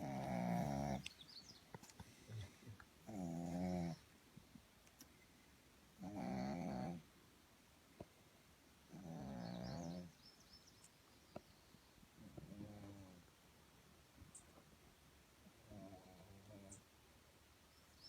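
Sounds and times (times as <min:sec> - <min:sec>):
dog snoring: 0:00.0 - 0:01.1, 0:03.0 - 0:04.0, 0:06.0 - 0:07.0, 0:08.9 - 0:10.1, 0:12.4 - 0:13.2, 0:15.6 - 0:16.8.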